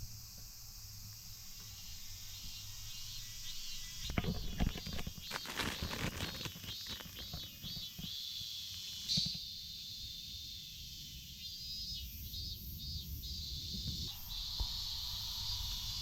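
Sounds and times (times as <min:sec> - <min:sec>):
insects chirping: 0:00.0 - 0:16.0
small knocks and crinkles: 0:04.0 - 0:08.2
rustling and clicking handling noises: 0:04.1 - 0:08.1.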